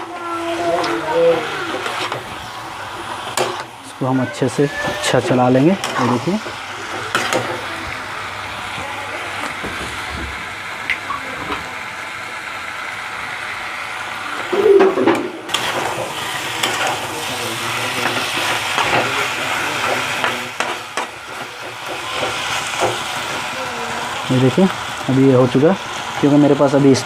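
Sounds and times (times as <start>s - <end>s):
chicken sizzling in a pan: 0.0s - 27.0s.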